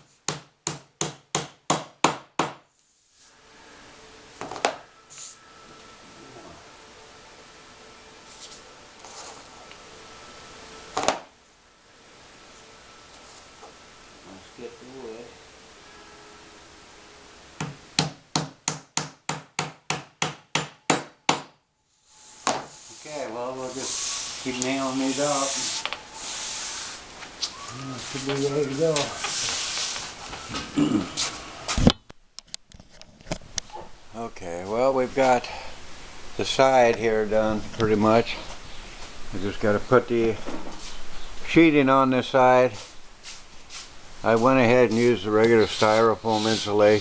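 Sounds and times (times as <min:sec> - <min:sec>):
hammer driving a nail: 0:00.3 - 0:02.6, 0:17.6 - 0:21.6.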